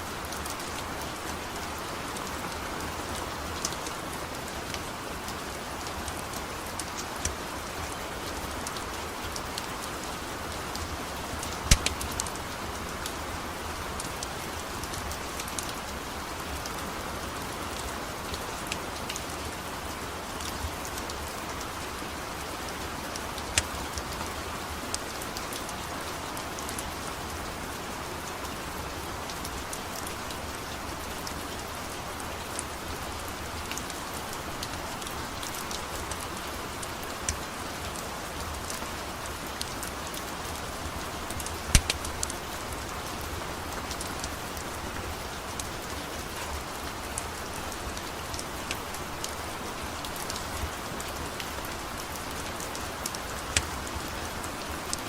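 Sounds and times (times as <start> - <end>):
steady rain falling: 0.0 - 55.0
wood fire crackling: 11.4 - 13.0, 40.4 - 45.7.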